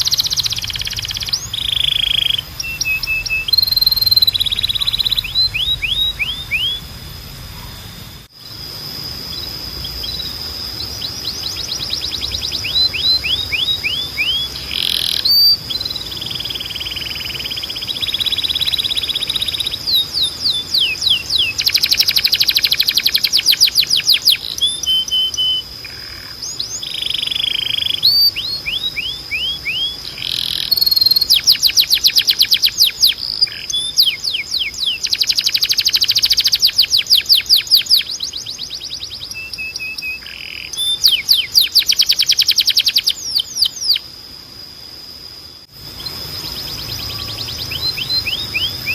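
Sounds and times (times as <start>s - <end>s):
high held tone: 0.0s - 25.9s
canary singing trills: 0.0s - 44.4s, 45.7s - 48.9s.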